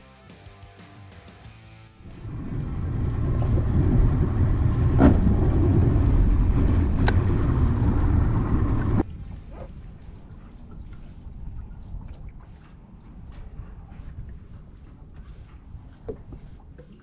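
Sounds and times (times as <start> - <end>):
engine rumbling: 2.0 - 13.9.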